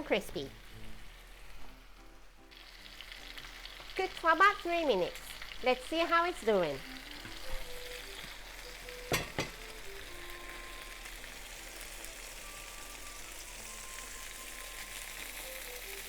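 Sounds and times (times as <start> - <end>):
chicken sizzling in a frying pan: 0.0 - 16.0.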